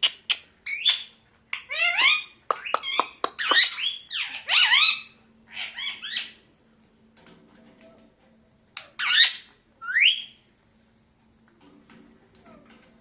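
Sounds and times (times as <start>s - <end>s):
parakeet squawking: 1.7s - 6.4s, 9.0s - 10.3s.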